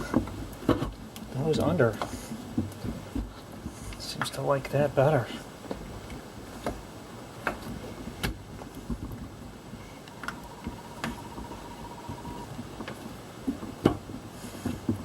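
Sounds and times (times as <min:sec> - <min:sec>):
faint steady tone: 0:09.7 - 0:12.6.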